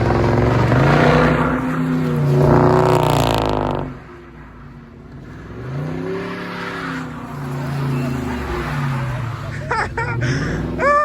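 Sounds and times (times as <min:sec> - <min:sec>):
car engine revving hard: 0:00.0 - 0:04.0.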